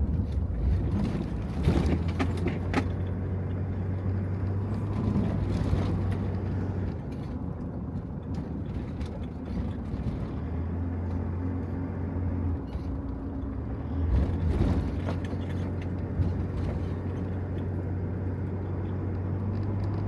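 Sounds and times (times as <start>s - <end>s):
low rumble: 3.7s - 7.6s.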